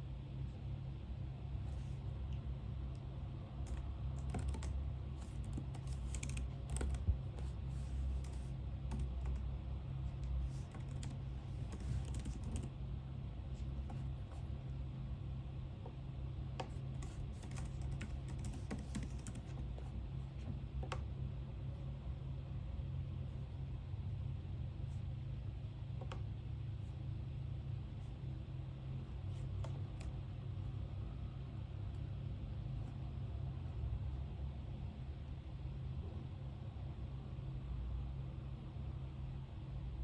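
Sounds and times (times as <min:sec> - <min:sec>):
steady low hum: 0:00.0 - 0:40.0
typing on computer keyboard: 0:03.6 - 0:07.5, 0:08.2 - 0:09.5, 0:10.1 - 0:12.7, 0:16.6 - 0:19.9.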